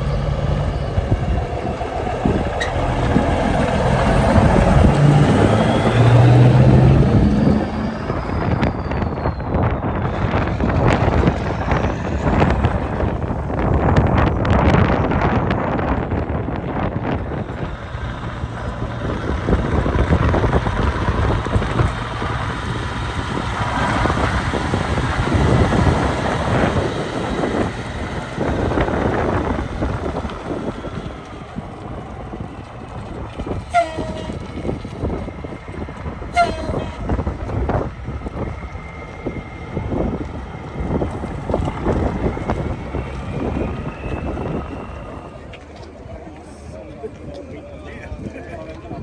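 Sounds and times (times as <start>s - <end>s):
vehicles driving past: 0.0s - 15.5s, 16.2s - 49.0s
short horn toots: 33.6s - 34.8s, 36.3s - 37.2s.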